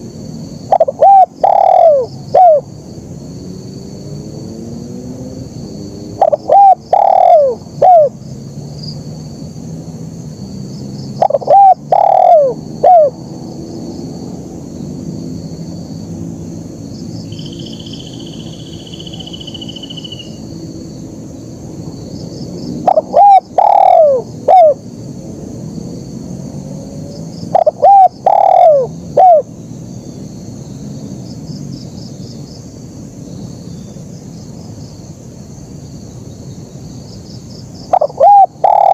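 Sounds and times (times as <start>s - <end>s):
dove cooing: 0.7s - 2.7s, 6.2s - 8.2s, 11.2s - 13.2s, 22.8s - 24.8s, 27.5s - 29.5s, 37.9s - 38.9s.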